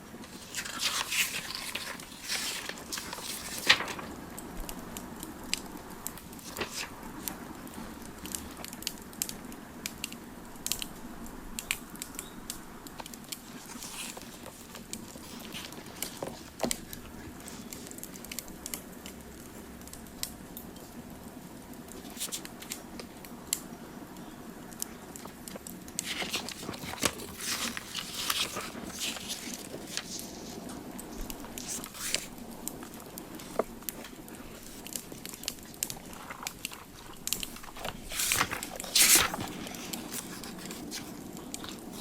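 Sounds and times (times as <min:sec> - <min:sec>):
wood fire crackling: 0:11.6 - 0:42.0.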